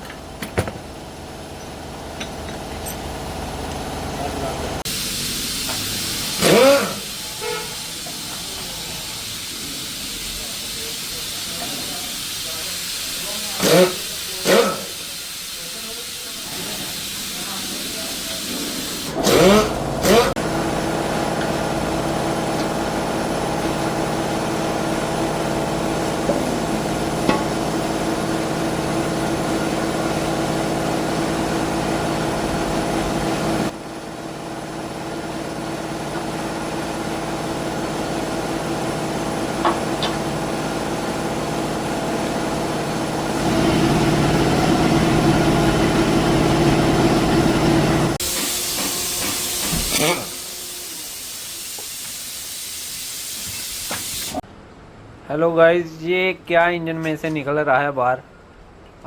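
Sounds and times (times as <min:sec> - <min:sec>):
motor humming: 0:16.4 - 0:33.7.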